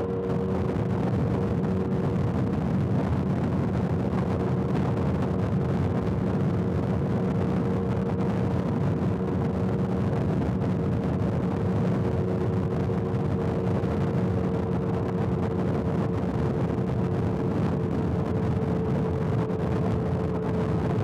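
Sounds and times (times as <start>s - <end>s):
wind and road noise: 0.0s - 21.0s.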